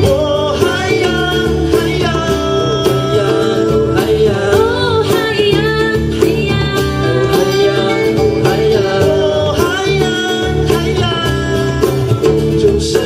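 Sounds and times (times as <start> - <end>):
live band playing pop song: 0.0 - 13.0
person singing: 0.0 - 13.0.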